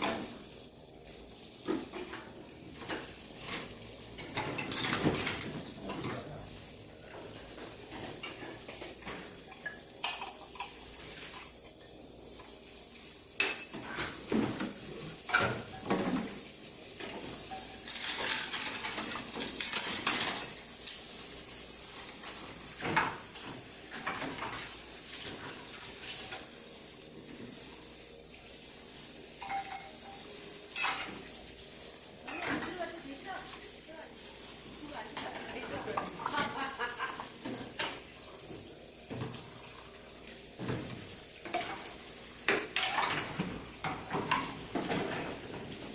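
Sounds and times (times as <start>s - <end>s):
ultrasonic cleaner whine: 0.0s - 18.0s, 18.6s - 45.9s
pots and dishes clinking: 1.6s - 6.3s, 7.1s - 11.6s, 13.4s - 21.1s, 29.3s - 31.4s, 32.2s - 33.0s, 40.6s - 45.8s.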